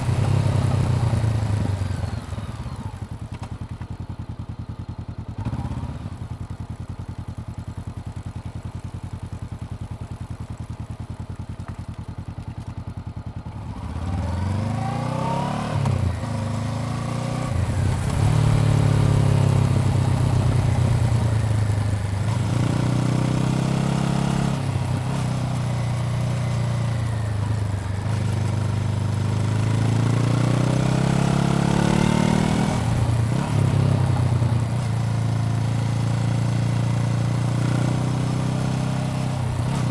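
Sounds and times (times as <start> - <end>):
motorcycle engine idling: 0.0 - 13.8, 24.6 - 30.0
motorcycle accelerating through gears: 0.0 - 39.9.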